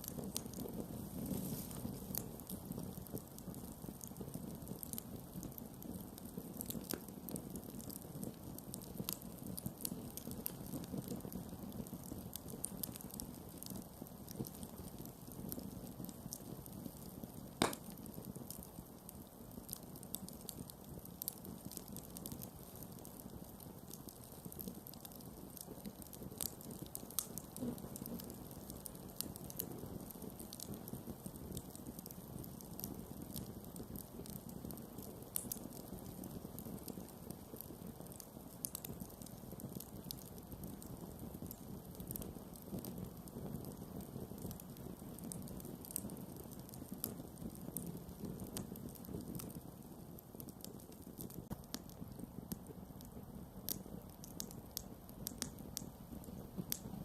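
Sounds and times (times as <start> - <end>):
campfire rushing: 0.0 - 3.3
campfire crackling and popping: 0.0 - 57.0.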